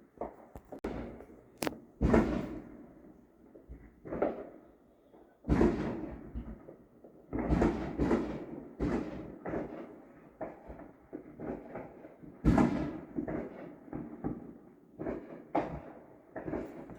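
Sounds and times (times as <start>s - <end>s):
muffled firework booms: 0.7s - 3.0s, 5.5s - 6.7s, 7.3s - 9.8s, 12.4s - 13.4s.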